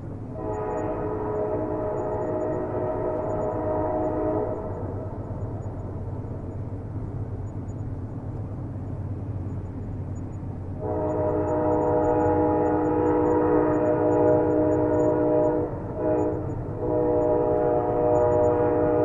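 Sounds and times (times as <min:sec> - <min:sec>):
low train rumble: 0:00.0 - 0:19.0
train horn chord: 0:00.3 - 0:05.0, 0:10.8 - 0:19.0.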